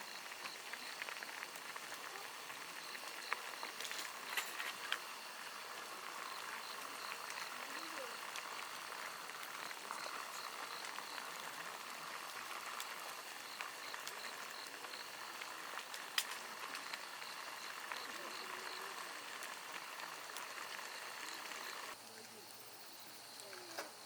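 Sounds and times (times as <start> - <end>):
fire crackling pops: 0.0 - 22.4
wood fire hissing: 0.0 - 24.0.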